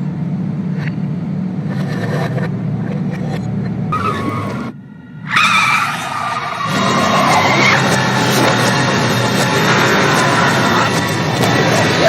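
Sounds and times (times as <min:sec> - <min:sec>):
reversed car engines: 0:00.0 - 0:12.0
steady low rumble: 0:00.0 - 0:12.0
tyre squeal tones: 0:03.9 - 0:12.0.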